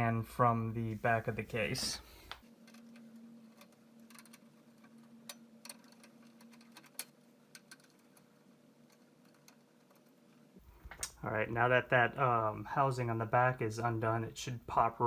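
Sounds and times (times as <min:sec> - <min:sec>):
faint steady hum: 0:00.0 - 0:15.0
small clicks of hands undoing housing: 0:02.3 - 0:10.2.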